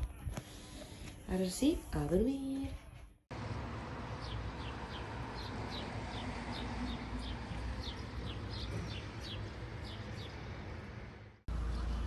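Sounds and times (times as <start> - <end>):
small birds chirping: 4.1 - 10.8.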